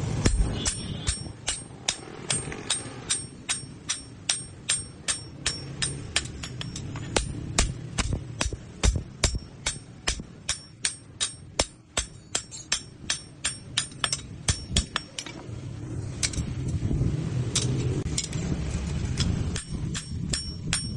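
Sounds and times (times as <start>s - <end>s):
hammer striking steel on anvil: 0.0s - 15.4s, 19.2s - 20.9s
low rumble: 11.3s - 20.9s.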